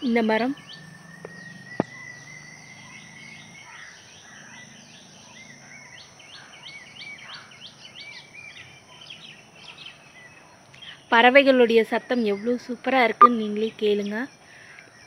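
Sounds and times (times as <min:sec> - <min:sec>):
birds chirping and calling: 0:00.0 - 0:11.1.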